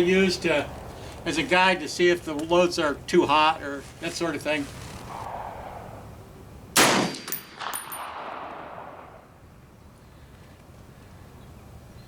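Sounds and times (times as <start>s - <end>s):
rifle shot echoing: 5.2s - 6.1s, 6.7s - 9.4s.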